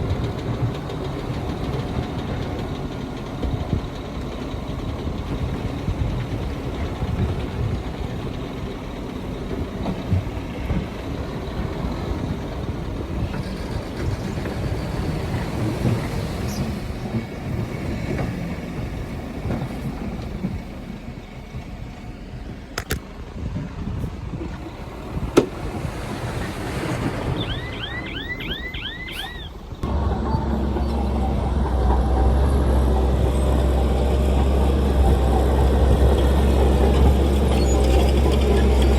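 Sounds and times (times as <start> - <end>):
heavy diesel machinery rumbling: 0.0 - 38.9
wind noise on microphone: 22.8 - 29.5
short chirps: 27.4 - 29.6.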